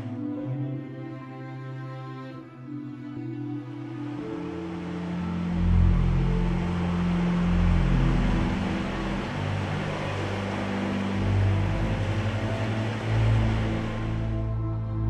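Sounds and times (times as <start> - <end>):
ambient music notes: 0.0 - 15.0
sea surf rushing: 2.9 - 14.5.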